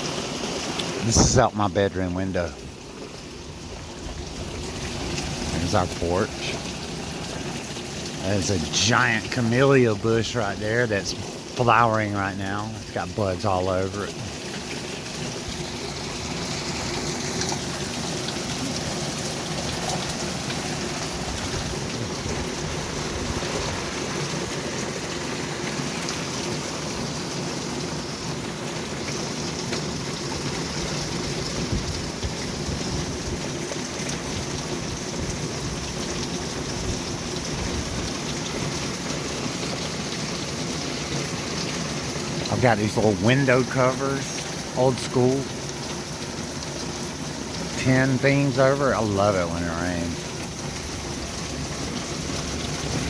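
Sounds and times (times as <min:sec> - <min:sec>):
rain on tin covers: 0:00.0 - 0:53.0.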